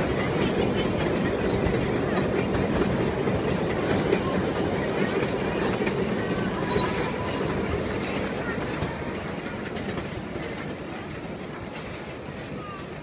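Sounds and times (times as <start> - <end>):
train wheels on rails: 0.0 - 13.0.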